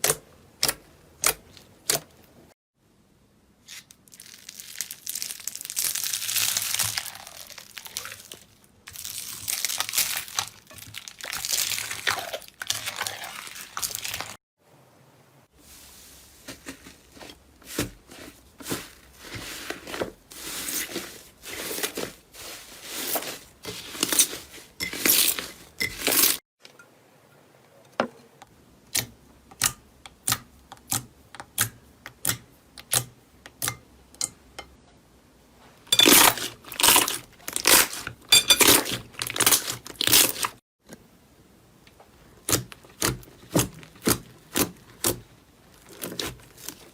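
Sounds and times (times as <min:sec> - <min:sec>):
slime squeezed crackling: 0:03.7 - 0:14.4, 0:36.3 - 0:38.0.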